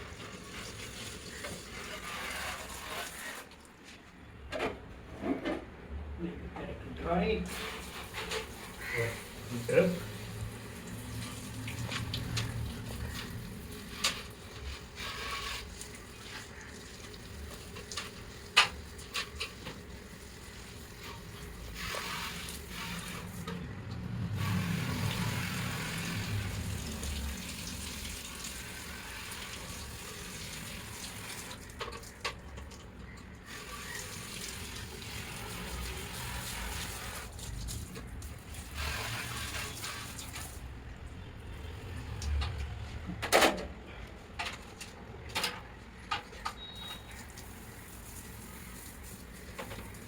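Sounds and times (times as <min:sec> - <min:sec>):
water trickling and dripping: 0:07.7 - 0:42.7, 0:46.5 - 0:50.0.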